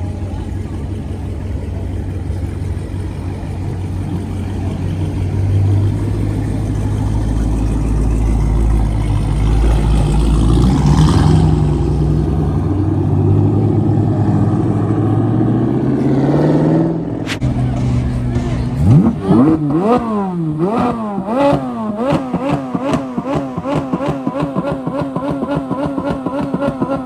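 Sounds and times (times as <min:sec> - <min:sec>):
car engine running: 0:00.0 - 0:27.0
short rush of noise: 0:17.2 - 0:18.2.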